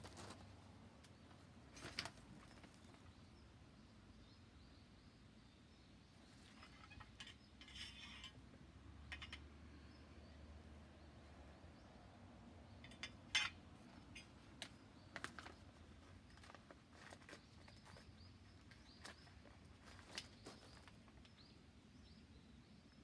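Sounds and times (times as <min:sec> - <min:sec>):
faint light clicks and clinks: 0:09.1 - 0:09.5, 0:12.8 - 0:14.7.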